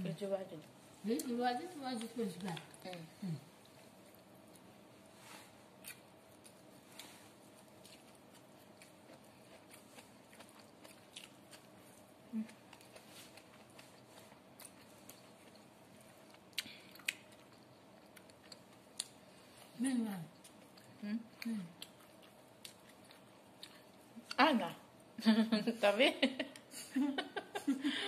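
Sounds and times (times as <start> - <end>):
crunchy chewing: 5.7 - 19.6, 20.3 - 24.1.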